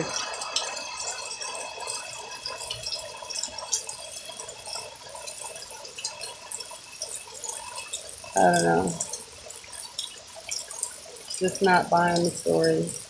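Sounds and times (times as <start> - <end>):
water dripping and trickling: 0.0 - 13.0.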